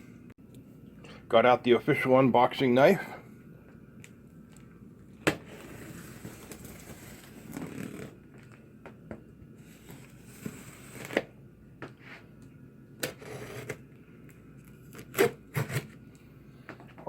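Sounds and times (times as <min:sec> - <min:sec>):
knife slitting tape and cardboard: 0:14.9 - 0:16.0.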